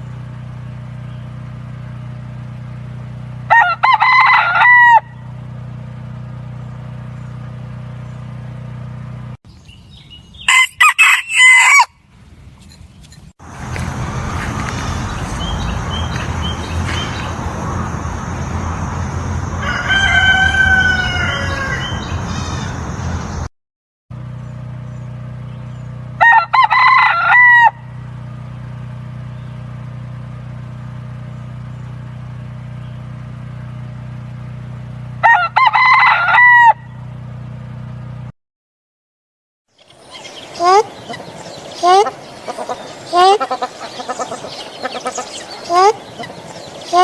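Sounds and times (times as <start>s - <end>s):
rooster crowing: 3.5s - 5.3s, 10.4s - 12.0s, 19.4s - 22.8s, 26.2s - 28.0s, 35.2s - 37.0s
steady low hum: 39.8s - 47.0s.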